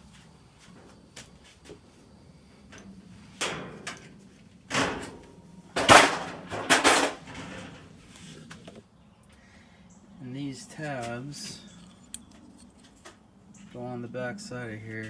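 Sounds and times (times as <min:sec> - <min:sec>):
sheet metal knocks and clatters: 0:03.4 - 0:07.8.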